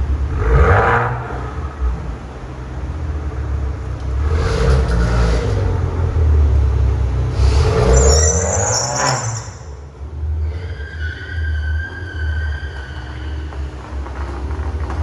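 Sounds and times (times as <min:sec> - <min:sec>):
car engine accelerating: 0:00.0 - 0:10.4.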